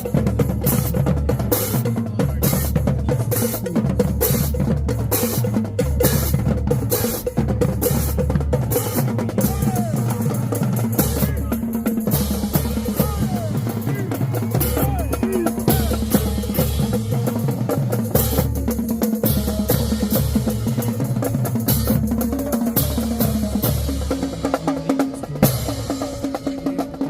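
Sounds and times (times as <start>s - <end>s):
bass drums: 0.0s - 27.0s
snare drums: 0.0s - 27.0s.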